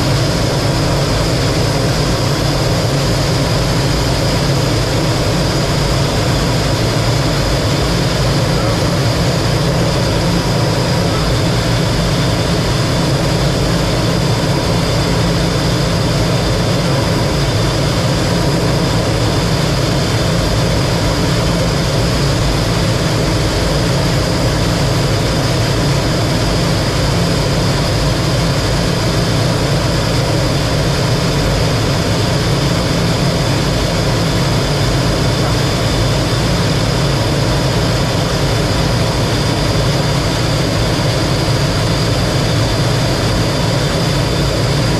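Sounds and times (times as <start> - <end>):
jet engine running: 0.0 - 44.9.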